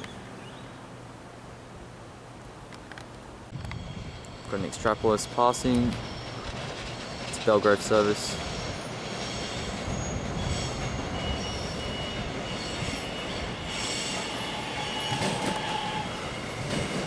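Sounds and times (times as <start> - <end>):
train wheels rumbling on rails: 3.5 - 17.0
high wheel squeals: 3.8 - 17.0.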